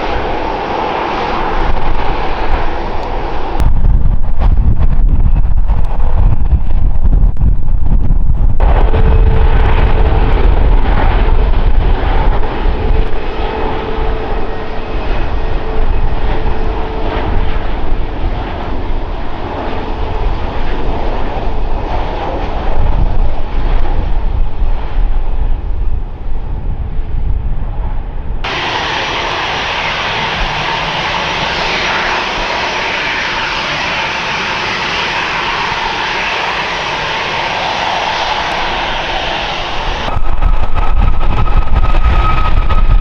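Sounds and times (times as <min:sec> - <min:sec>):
airliner engines rumbling: 0:00.0 - 0:43.0
steady whining tone: 0:08.2 - 0:22.8, 0:28.4 - 0:43.0.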